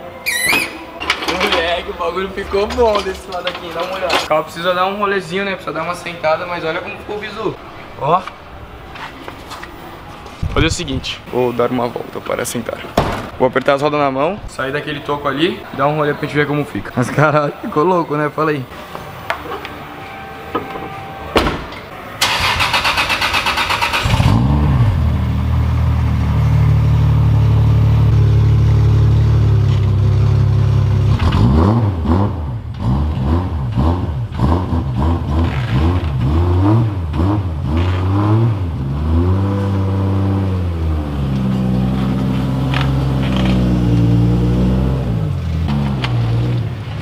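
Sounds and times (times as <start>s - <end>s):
thud: 13.0s - 13.4s, 21.4s - 21.8s
car engine starting and idling: 21.7s - 31.9s, 40.6s - 47.0s
engine revving: 22.2s - 47.0s.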